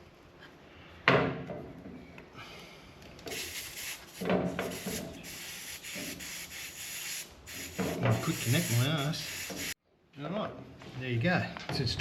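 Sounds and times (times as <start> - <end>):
air hissing from tyre valve: 3.3 - 9.8
hose chuck rubbing and scraping: 7.5 - 9.7.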